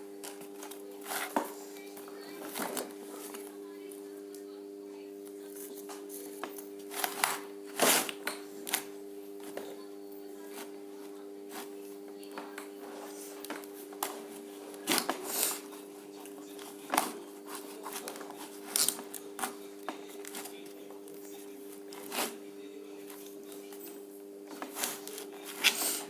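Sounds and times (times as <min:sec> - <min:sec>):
hands rustling materials: 0:05.6 - 0:26.0.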